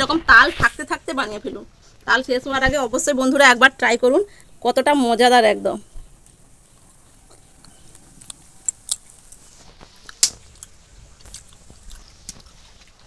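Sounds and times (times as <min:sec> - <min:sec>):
person chewing: 0:06.3 - 0:13.0.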